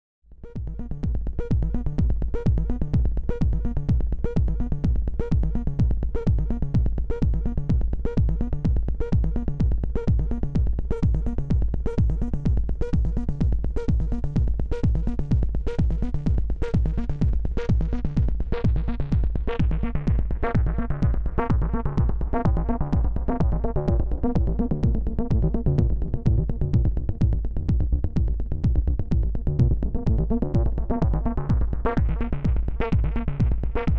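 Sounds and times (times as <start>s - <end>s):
deep bass: 0.3s - 33.9s
techno drum beat: 0.4s - 33.9s.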